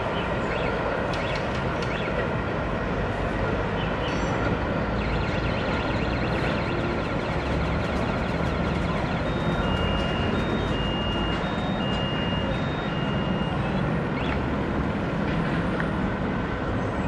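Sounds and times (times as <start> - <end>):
two-tone electronic beep: 5.0 - 14.4
rail traffic rumble: 5.7 - 17.0.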